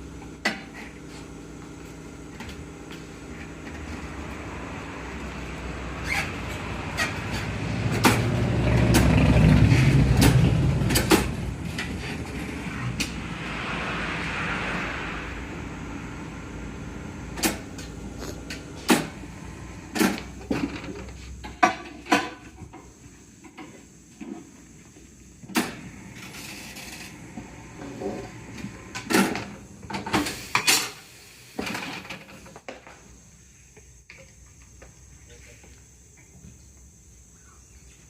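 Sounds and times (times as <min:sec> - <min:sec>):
rushing air hiss: 0:11.4 - 0:20.4, 0:25.8 - 0:31.8.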